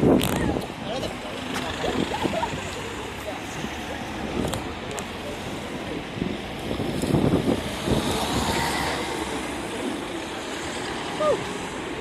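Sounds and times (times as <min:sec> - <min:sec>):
wind buffeting microphone: 0:05.7 - 0:09.8.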